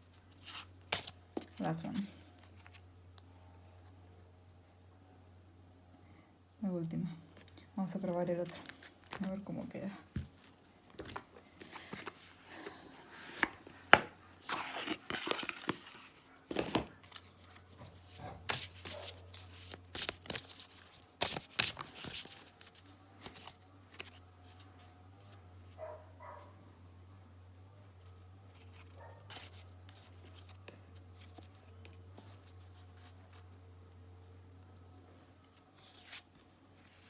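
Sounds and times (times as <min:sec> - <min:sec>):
cards rustling and sliding: 0:00.1 - 0:02.9, 0:08.4 - 0:09.5, 0:10.2 - 0:25.4, 0:28.0 - 0:33.7, 0:35.4 - 0:37.0
cards tapping and slapping: 0:13.3 - 0:17.3, 0:18.4 - 0:22.6.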